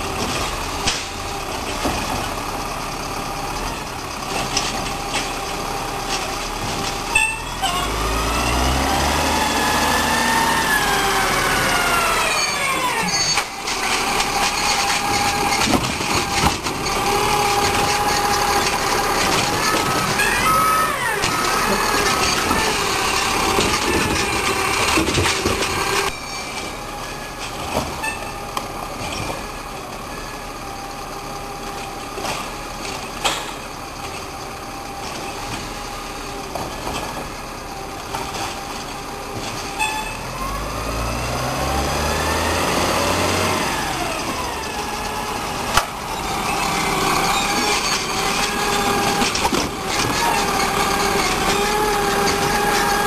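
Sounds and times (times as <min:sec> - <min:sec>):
garbage truck engine: 0:00.0 - 0:53.0.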